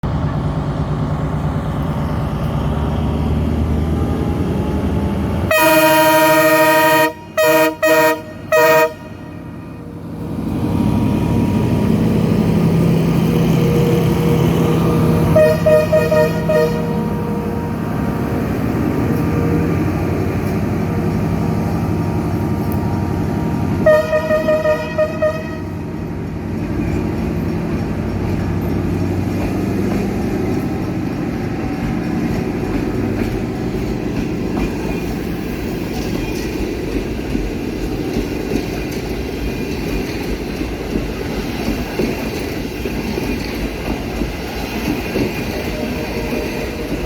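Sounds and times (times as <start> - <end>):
locomotive horn blasts: 5.5 - 9.6, 15.2 - 17.8, 23.8 - 25.8.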